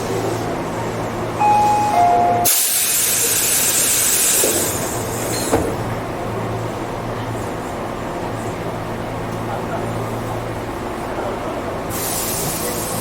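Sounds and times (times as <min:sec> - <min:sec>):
train low hum: 0:00.0 - 0:13.0
short beep tones: 0:01.4 - 0:02.8.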